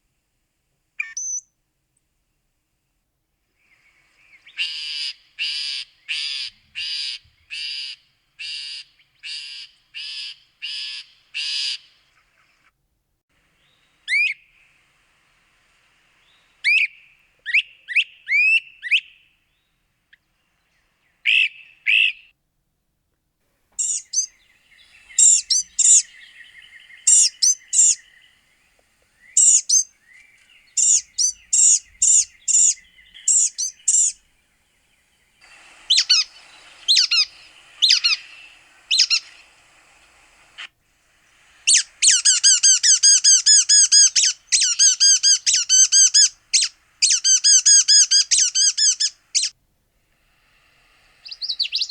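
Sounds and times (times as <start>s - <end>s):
birds calling high sweeping notes: 23.8s - 40.7s, 41.7s - 49.5s, 51.2s - 51.9s.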